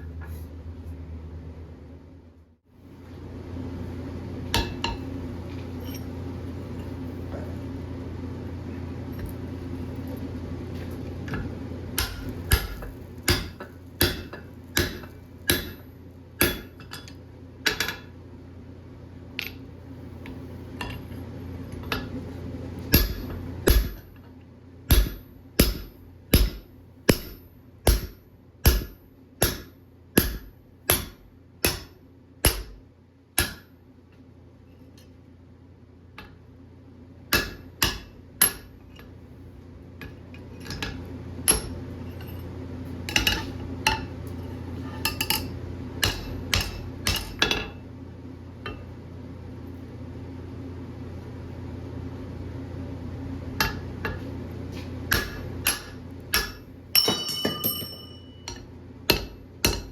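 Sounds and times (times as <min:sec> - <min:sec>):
steady low hum: 0:00.0 - 0:59.9
hammer striking steel on anvil: 0:04.6 - 0:05.1, 0:12.0 - 0:18.1, 0:22.9 - 0:24.1, 0:24.9 - 0:32.8, 0:33.4 - 0:33.8, 0:37.3 - 0:38.8, 0:40.0 - 0:42.3, 0:43.1 - 0:44.1, 0:45.0 - 0:47.8, 0:48.7 - 0:48.9, 0:53.6 - 0:54.2, 0:55.1 - 0:59.9.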